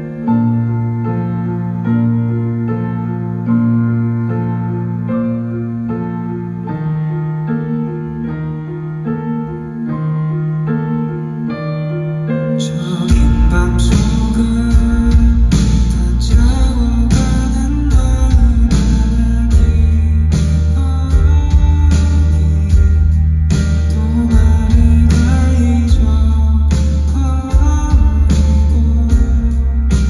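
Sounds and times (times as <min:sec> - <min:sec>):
bass: 0:00.0 - 0:30.0
keyboard sustained chords: 0:00.0 - 0:30.0
drums: 0:13.0 - 0:30.0.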